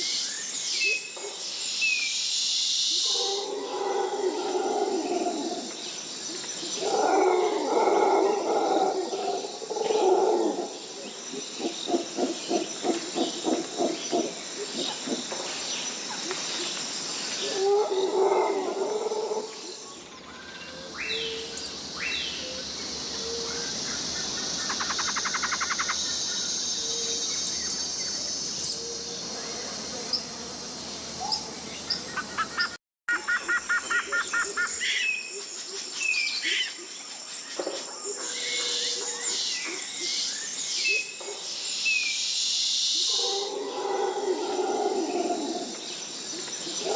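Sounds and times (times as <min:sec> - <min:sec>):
high insect drone: 0:00.0 - 0:32.8
rapid pulsed animal calls: 0:20.3 - 0:29.4.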